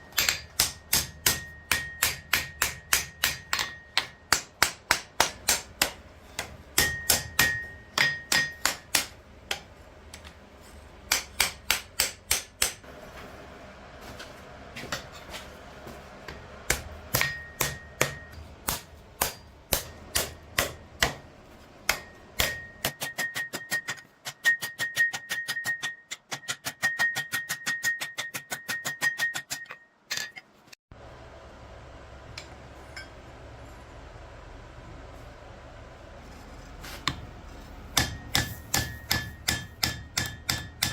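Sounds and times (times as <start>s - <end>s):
hammer striking steel on anvil: 0.0s - 9.7s, 11.0s - 12.9s, 16.3s - 30.4s, 37.9s - 40.9s.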